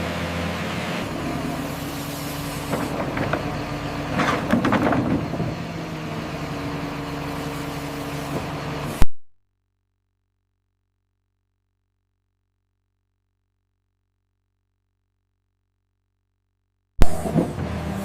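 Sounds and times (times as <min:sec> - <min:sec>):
diesel engine running: 0:00.0 - 0:09.0, 0:17.0 - 0:18.0
cracking and knocking: 0:02.7 - 0:05.7.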